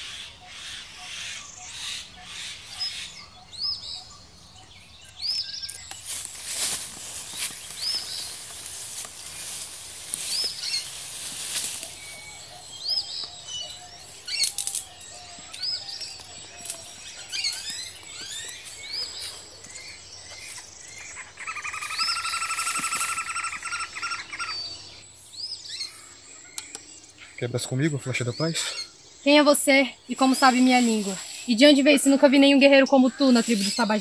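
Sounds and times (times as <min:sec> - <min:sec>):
bird chirps: 0:00.0 - 0:34.0
sharp clicks: 0:26.5 - 0:26.9.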